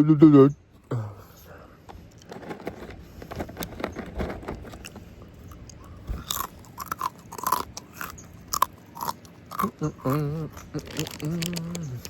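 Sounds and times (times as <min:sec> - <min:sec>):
chewing and biting chicken: 0:04.8 - 0:12.0.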